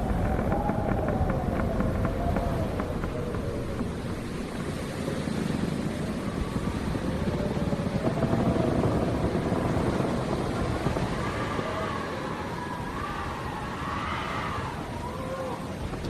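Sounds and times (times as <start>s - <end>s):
howling wind: 0.0s - 16.0s.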